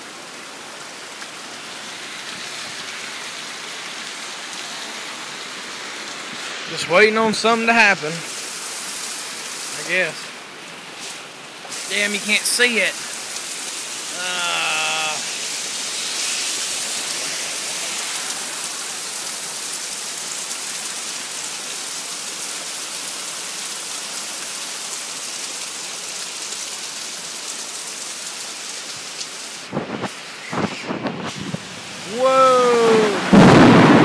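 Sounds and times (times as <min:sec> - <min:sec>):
heavy rain: 0:00.0 - 0:34.0
sharp thunder cracks: 0:33.2 - 0:34.0.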